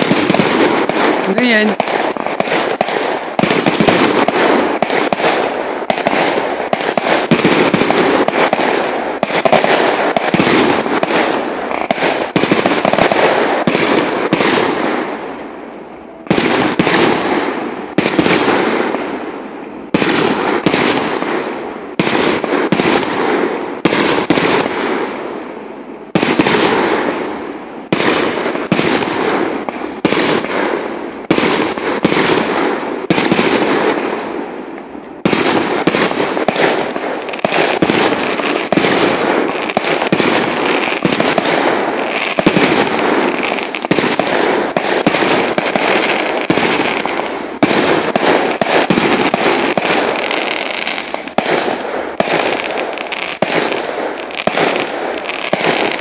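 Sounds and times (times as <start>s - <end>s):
firework shells bursting: 0.0s - 15.4s, 26.1s - 56.0s.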